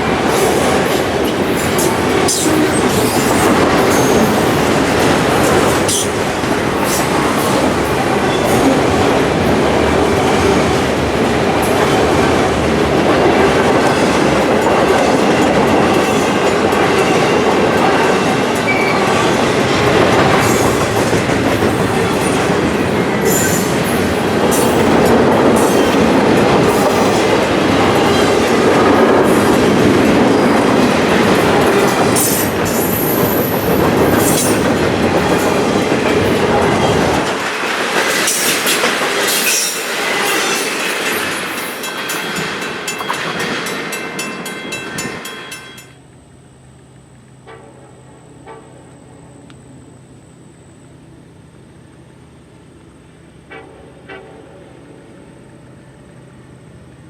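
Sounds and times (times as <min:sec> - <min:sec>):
train wheels rumbling on rails: 0:00.0 - 0:57.0
high wheel squeals: 0:01.6 - 0:06.2, 0:18.6 - 0:19.4.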